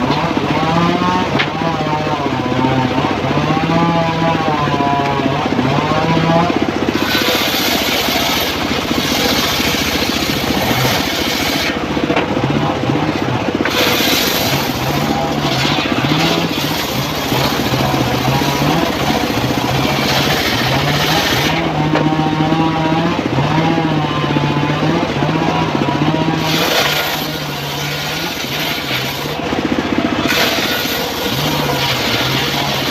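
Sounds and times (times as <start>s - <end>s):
circular sawmill engine running: 0.0s - 32.9s
saw blade ripping through wood: 6.9s - 12.3s, 13.6s - 22.2s, 26.2s - 32.9s.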